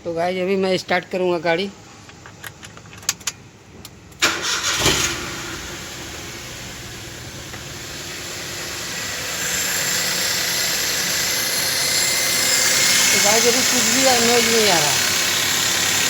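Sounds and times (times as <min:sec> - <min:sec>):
car engine starting and idling: 0:04.1 - 0:16.0.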